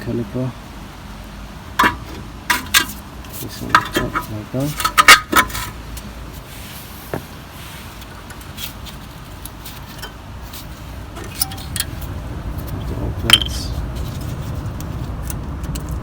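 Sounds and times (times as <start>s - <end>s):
metal brake parts clinking: 1.8s - 5.8s, 11.1s - 13.8s.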